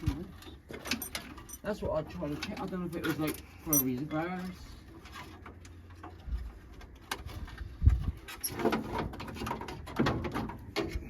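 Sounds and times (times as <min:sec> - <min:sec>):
workshop knocks and clatter: 0:07.1 - 0:11.0.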